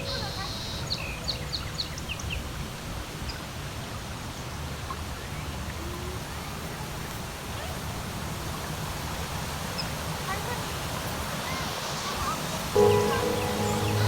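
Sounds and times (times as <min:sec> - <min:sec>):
bird chirps: 0:12.8 - 0:14.0.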